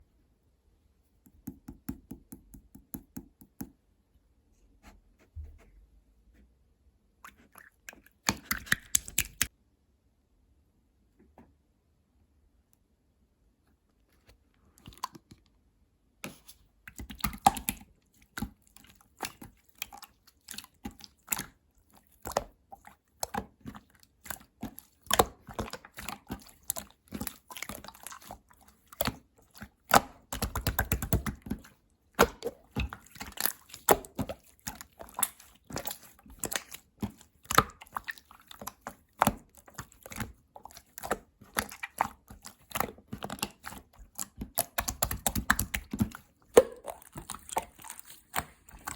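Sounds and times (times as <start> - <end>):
slime squishing with wet clicks: 7.1 - 9.6, 14.2 - 48.9.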